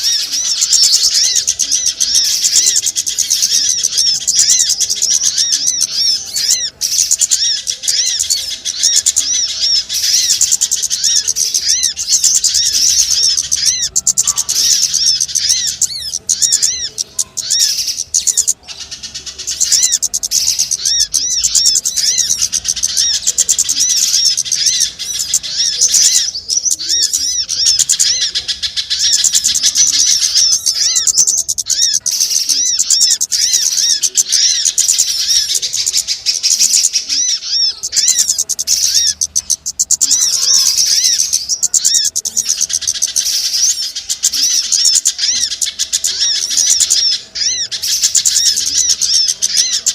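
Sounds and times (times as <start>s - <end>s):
many small birds chattering: 0.0s - 49.9s.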